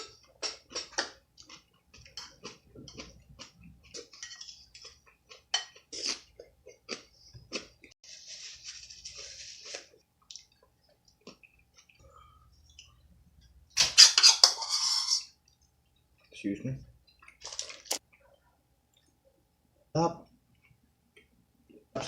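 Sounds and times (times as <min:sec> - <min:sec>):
rustling noise: 0:08.0 - 0:09.9.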